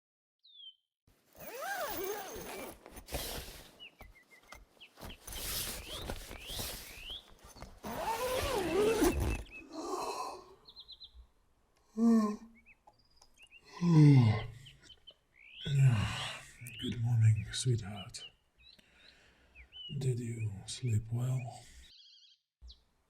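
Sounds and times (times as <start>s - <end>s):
small birds chirping: 0.4s - 0.8s, 1.4s - 22.9s
rustling noise with clicks: 1.4s - 8.5s.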